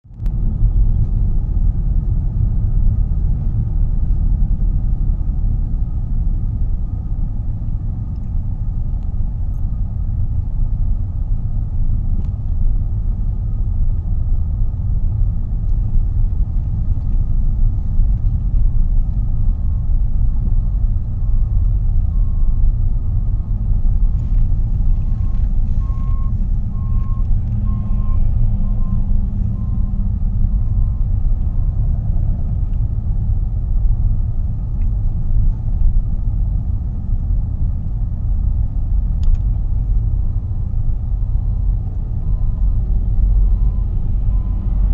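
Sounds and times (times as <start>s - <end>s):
heavy machinery rumbling: 14.4s - 44.9s
reversing alarm beeps: 24.9s - 31.1s, 41.2s - 44.9s.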